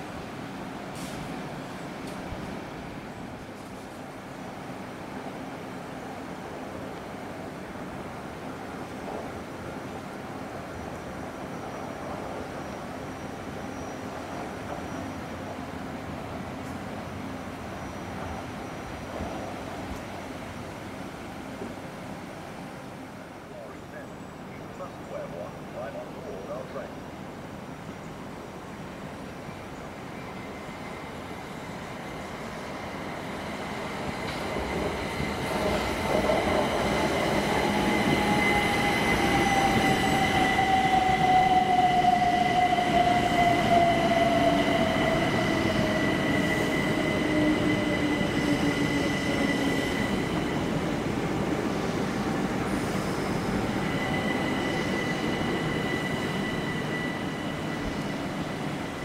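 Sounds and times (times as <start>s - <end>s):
train whine: 0.0s - 59.0s
high squeal: 52.7s - 59.0s.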